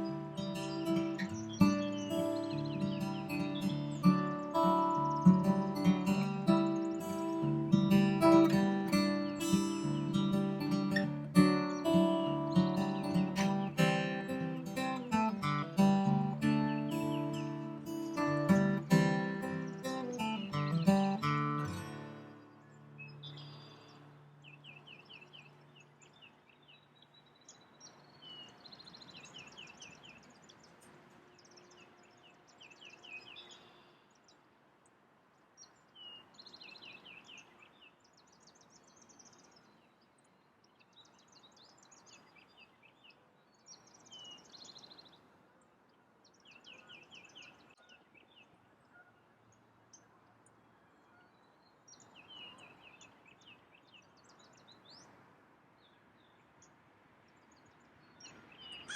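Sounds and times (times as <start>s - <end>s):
strummed acoustic guitar: 0.0s - 23.2s
soft outdoor hiss: 0.0s - 58.9s
songbird singing: 0.0s - 58.9s.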